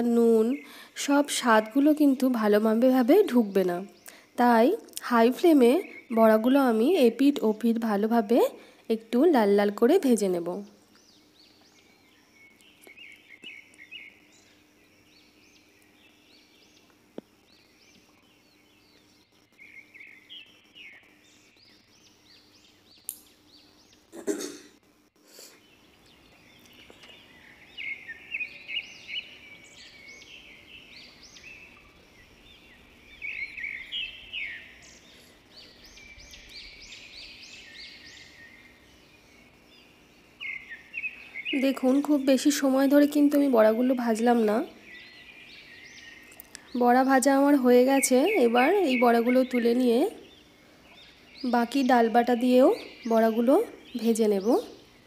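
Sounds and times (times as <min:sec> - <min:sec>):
faint steady hum: 0:00.0 - 0:55.0
small birds chirping: 0:00.0 - 0:55.0.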